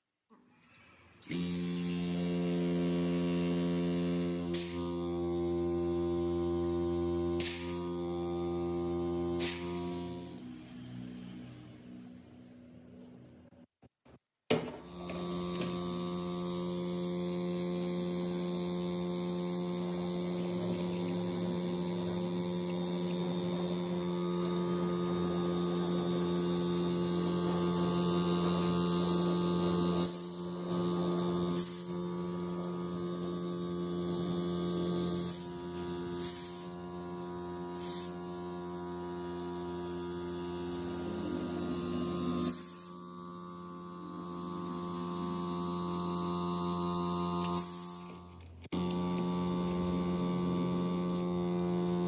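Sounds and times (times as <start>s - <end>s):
steady electric hum: 1.2s - 13.7s, 14.7s - 52.0s
short hissing bursts: 7.4s - 7.8s, 9.4s - 10.4s, 31.6s - 31.9s, 35.1s - 35.6s, 36.2s - 36.8s, 37.7s - 38.2s, 42.4s - 43.0s.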